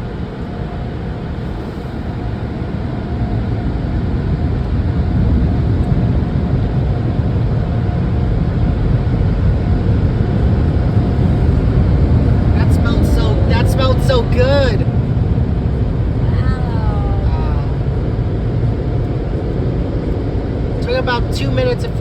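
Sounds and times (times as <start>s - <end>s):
car wash machinery: 10.6s - 15.1s.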